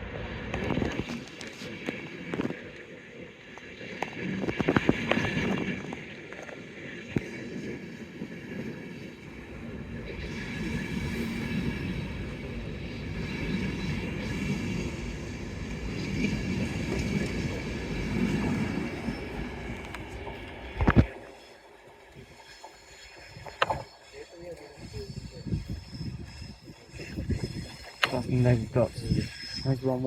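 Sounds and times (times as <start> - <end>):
train wheels rumbling on rails: 9.1 - 30.0.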